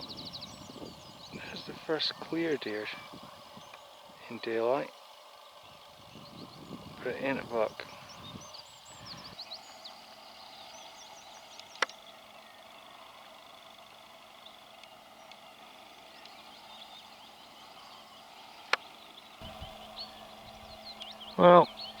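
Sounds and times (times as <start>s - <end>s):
small birds chirping: 0.0s - 22.0s
steady hiss: 1.2s - 11.8s, 19.4s - 22.0s.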